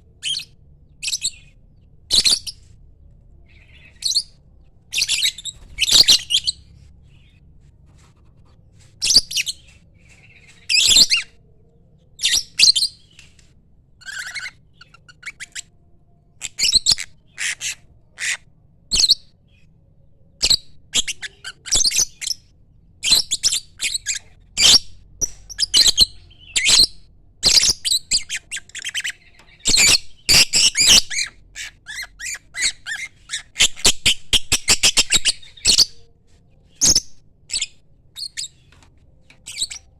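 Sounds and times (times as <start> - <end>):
lovebird chirps and squawks: 0.2 - 2.7, 3.5 - 6.7, 9.0 - 11.4, 12.2 - 13.2, 14.0 - 15.7, 16.4 - 19.2, 20.4 - 22.4, 23.0 - 36.1, 36.8 - 38.7, 39.4 - 39.9.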